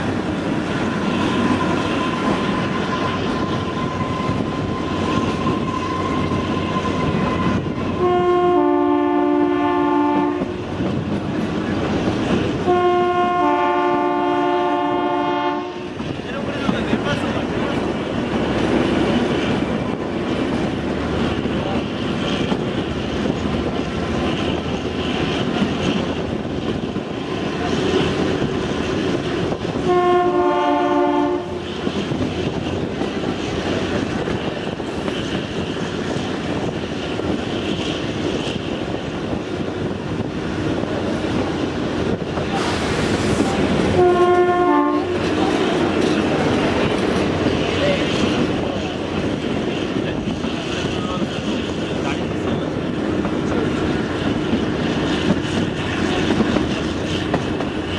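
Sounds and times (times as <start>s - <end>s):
train wheels clickety-clack: 0.0s - 57.9s
two-note train horn: 5.4s - 10.6s, 12.6s - 16.0s, 29.8s - 31.6s, 43.9s - 45.4s.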